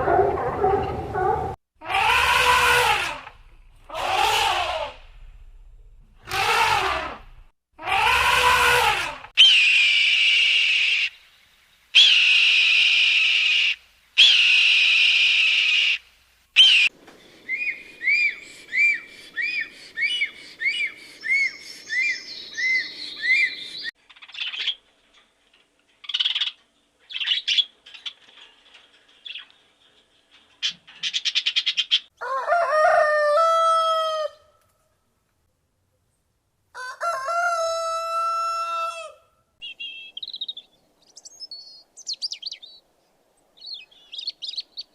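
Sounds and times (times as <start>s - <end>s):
bird chirps: 16.6s - 24.8s, 39.6s - 42.9s, 43.6s - 44.9s
bird calls: 16.6s - 24.9s, 39.6s - 42.9s, 43.6s - 44.9s.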